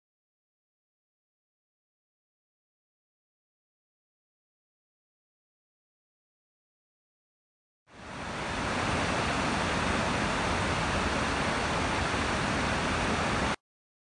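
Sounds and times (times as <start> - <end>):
rushing open water: 7.9 - 13.6.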